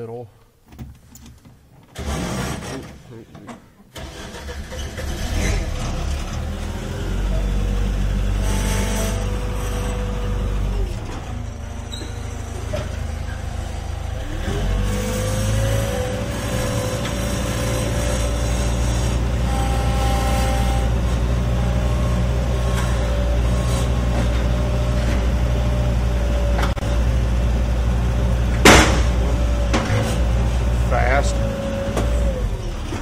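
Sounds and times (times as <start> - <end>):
skid steer engine whining: 4.0 - 33.0
sharp bang: 28.6 - 29.2.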